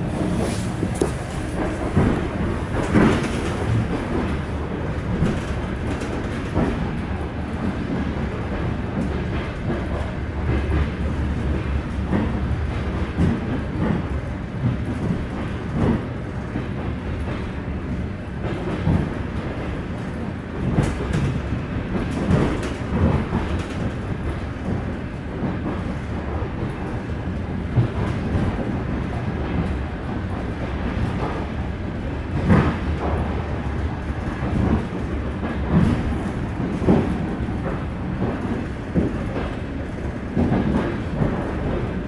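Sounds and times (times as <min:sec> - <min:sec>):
train wheels rumbling on rails: 0:00.0 - 0:42.0
knocks and clatter: 0:00.2 - 0:07.0, 0:18.4 - 0:27.1, 0:32.4 - 0:42.0.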